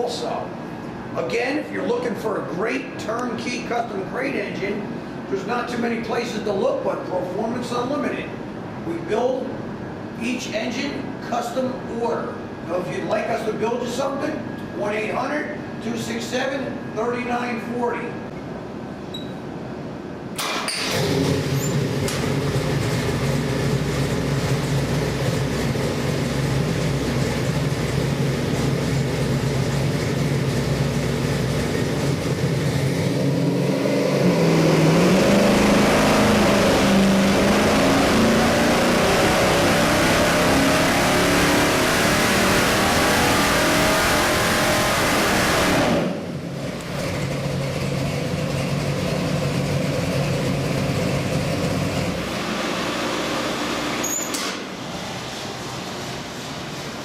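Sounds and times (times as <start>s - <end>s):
big-block engine running on dyno: 20.4s - 57.0s.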